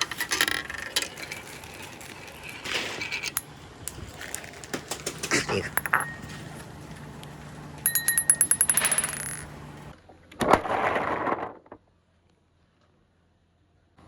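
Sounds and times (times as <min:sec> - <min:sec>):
marbles clattering down track: 0:00.0 - 0:06.7, 0:07.9 - 0:09.6
marble rolling noise: 0:00.0 - 0:11.8.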